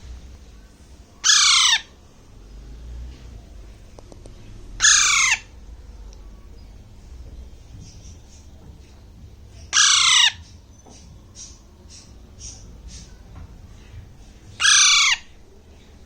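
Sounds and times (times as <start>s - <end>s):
parakeet chick squawking: 1.2s - 2.0s, 4.8s - 5.5s, 9.5s - 13.3s, 14.5s - 15.4s.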